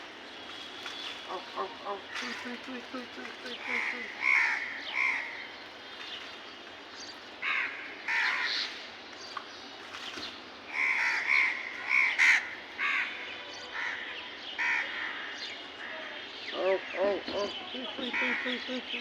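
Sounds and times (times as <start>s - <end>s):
crows cawing: 1.3s - 5.5s, 7.4s - 8.8s, 10.7s - 19.0s.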